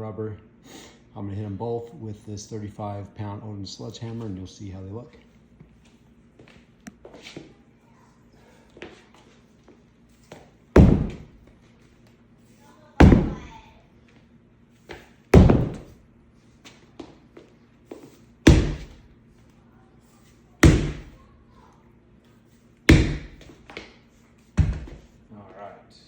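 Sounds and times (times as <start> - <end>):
sledgehammer thuds on rubber: 10.8 - 11.5, 13.0 - 13.7, 14.9 - 16.0, 18.5 - 19.1, 20.6 - 21.2, 22.9 - 23.7, 24.6 - 25.1.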